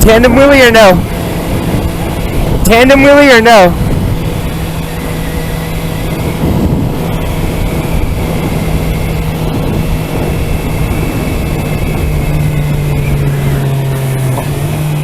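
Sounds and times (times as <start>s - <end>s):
motorcycle engine drone: 0.0s - 15.0s
steady rush of noise: 0.0s - 15.0s.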